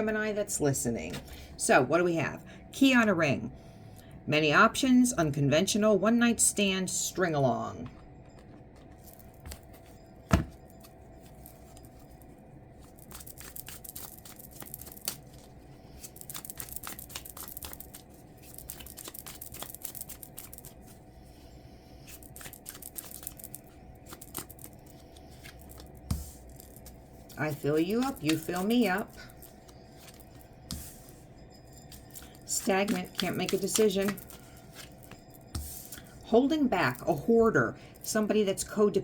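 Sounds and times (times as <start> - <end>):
cards shuffling: 12.9 - 21.0, 22.1 - 31.1, 31.9 - 36.1.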